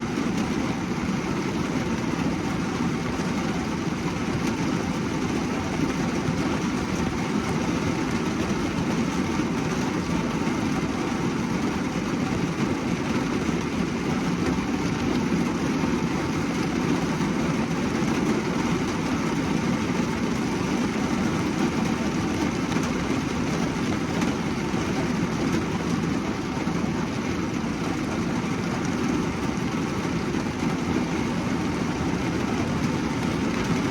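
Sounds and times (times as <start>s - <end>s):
rain on car roof: 0.0s - 33.9s.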